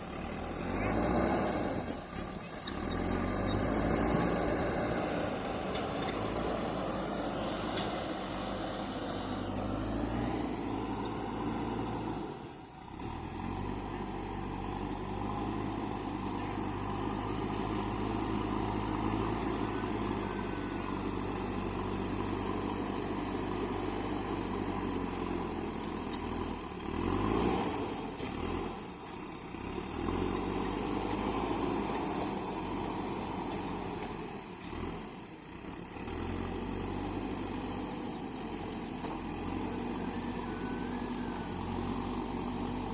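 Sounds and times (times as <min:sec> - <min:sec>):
backhoe diesel engine revving: 0:00.0 - 0:42.9.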